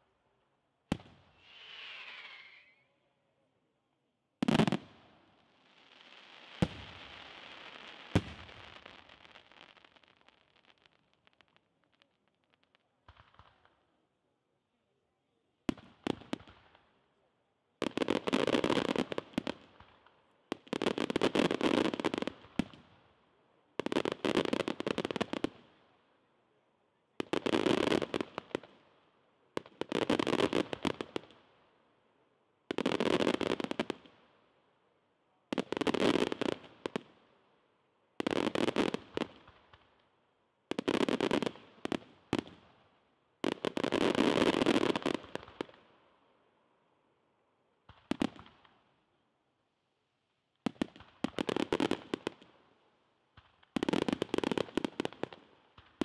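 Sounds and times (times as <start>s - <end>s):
firework shell bursts crackling: 1.4s - 3.0s.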